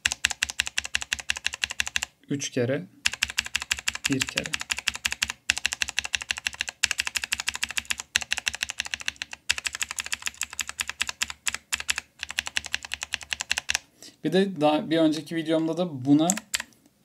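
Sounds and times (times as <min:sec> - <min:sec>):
mechanical keyboard clicking: 0:00.0 - 0:02.1, 0:03.1 - 0:13.8, 0:16.1 - 0:16.7.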